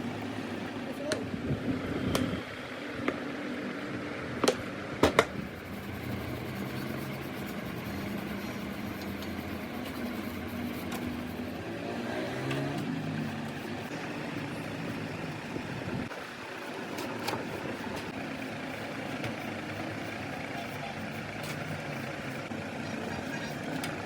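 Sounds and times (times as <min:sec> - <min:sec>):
motor humming: 0:05.3 - 0:24.0.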